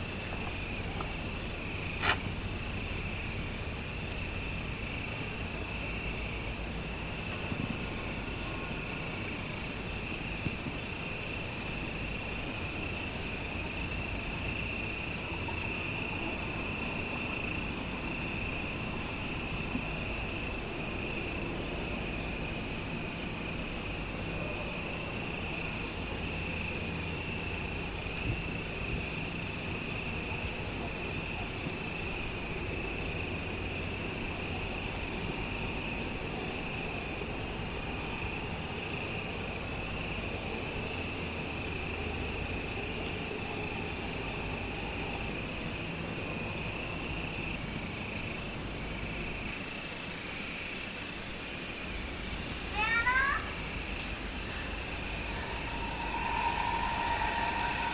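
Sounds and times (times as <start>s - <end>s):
crickets chirping: 0.0s - 57.9s
low steady rumble: 53.6s - 57.9s.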